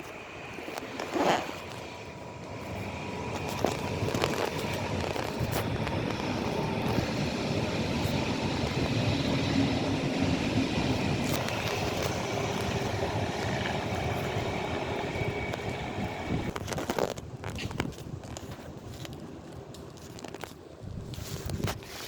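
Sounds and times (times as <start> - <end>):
faint whining tones: 0.0 - 16.8
train wheels rumbling on rails: 0.0 - 22.0.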